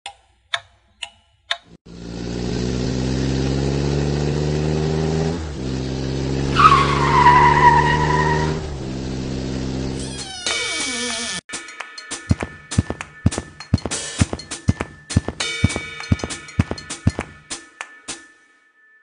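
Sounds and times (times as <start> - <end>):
car engine running: 1.9 - 10.0
tyre squeal: 6.5 - 8.6, 10.0 - 11.4.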